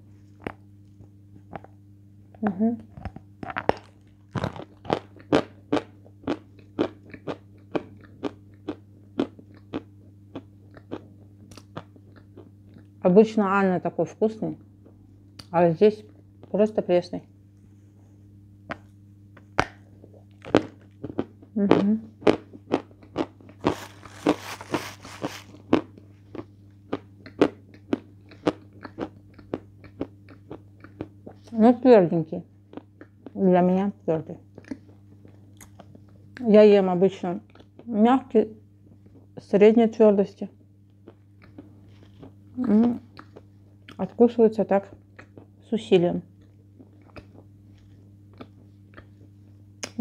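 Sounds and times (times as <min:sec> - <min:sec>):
chalk crunching while chewed: 0:02.9 - 0:13.0, 0:22.2 - 0:31.5, 0:34.5 - 0:36.4, 0:37.5 - 0:37.9, 0:40.9 - 0:44.0, 0:46.4 - 0:50.0.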